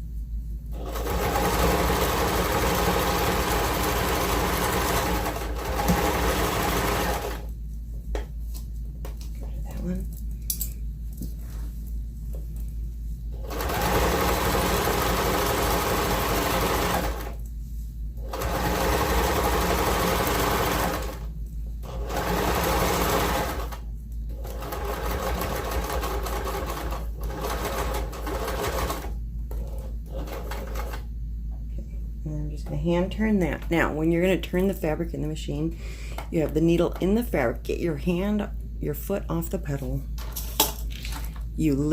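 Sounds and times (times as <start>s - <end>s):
electric sewing machine stitching: 0.8s - 7.5s, 13.4s - 17.4s, 18.2s - 31.0s.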